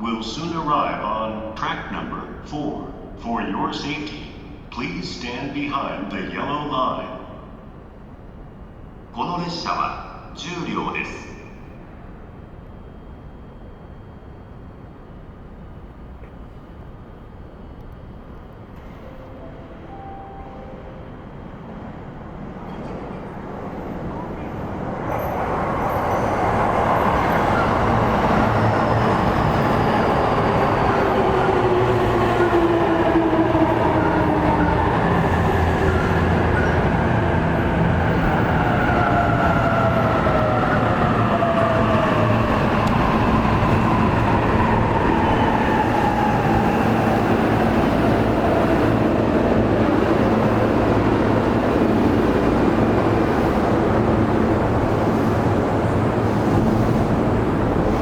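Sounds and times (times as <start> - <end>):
wheels rumbling on rail: 14.0 - 58.0.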